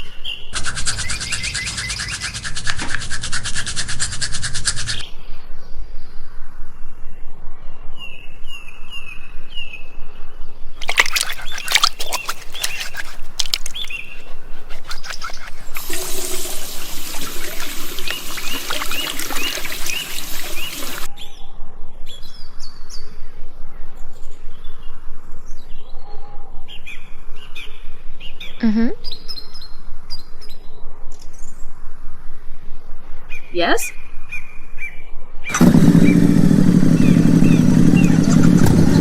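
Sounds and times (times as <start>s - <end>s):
bird-like chirps: 0.0s - 5.1s
clicks and rattles: 10.8s - 15.7s
rushing like pouring water: 10.8s - 21.1s.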